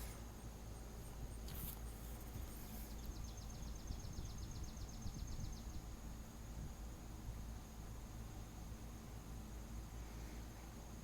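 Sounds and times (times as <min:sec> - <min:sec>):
high insect hum: 0:00.0 - 0:11.0
wind rumble on microphone: 0:01.5 - 0:07.5.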